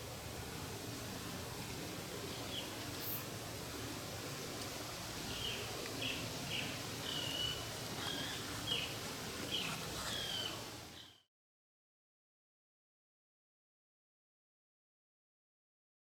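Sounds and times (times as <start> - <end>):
steady outdoor hiss: 0.0 - 11.3
small birds chirping: 5.3 - 11.2.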